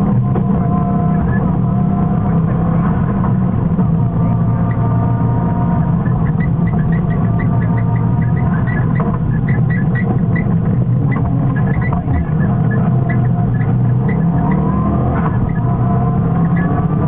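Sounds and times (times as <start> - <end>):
rally car engine at speed: 0.0 - 17.0
road noise: 0.0 - 17.0.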